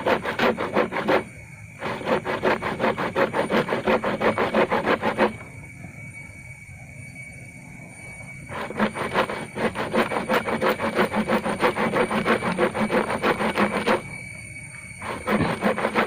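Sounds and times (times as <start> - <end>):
saw cutting bamboo: 0.0 - 5.4, 8.5 - 14.2, 15.0 - 16.0.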